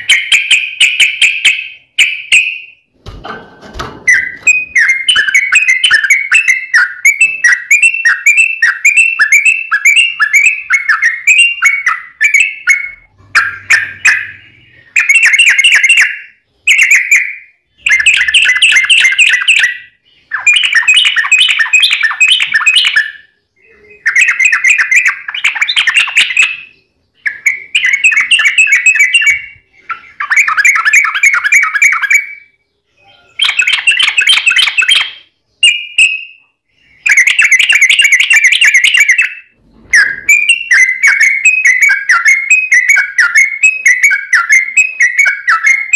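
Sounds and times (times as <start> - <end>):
bird singing chattering phrases: 4.1 - 45.9.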